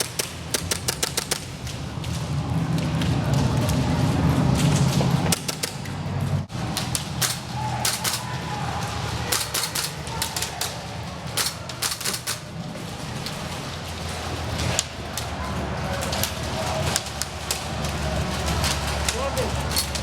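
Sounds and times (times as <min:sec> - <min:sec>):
airsoft gunfire clacks: 0:00.0 - 0:01.7, 0:05.3 - 0:06.0, 0:06.6 - 0:13.5.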